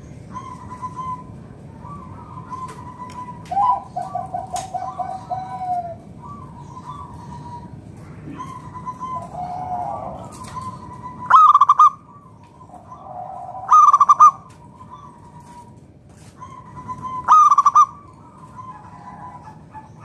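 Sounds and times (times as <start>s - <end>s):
dove cooing with trilled coo: 0.0s - 20.0s.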